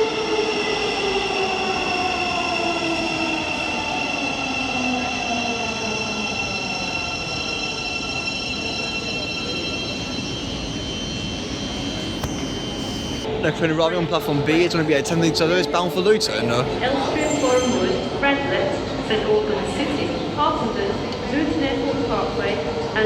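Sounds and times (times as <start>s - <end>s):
electric train motor whine: 11.3s - 13.2s.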